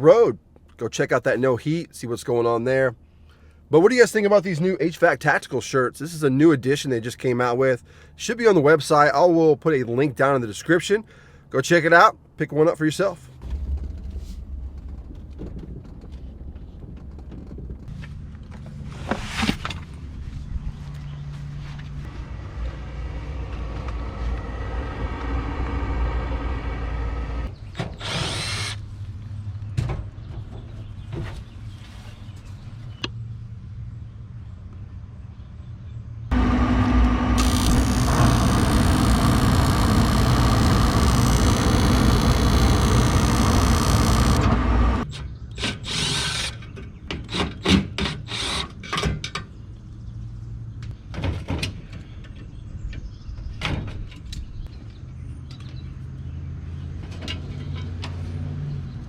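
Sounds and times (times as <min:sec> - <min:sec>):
low running rumble: 0:13.4 - 0:18.6, 0:22.0 - 0:27.5, 0:36.3 - 0:45.1
loud whirring machine: 0:22.1 - 0:28.8, 0:36.3 - 0:45.1.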